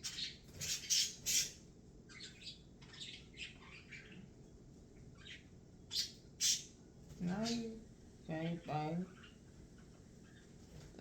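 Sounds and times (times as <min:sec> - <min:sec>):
birds chirping and squawking: 0:00.0 - 0:07.8, 0:08.6 - 0:10.6.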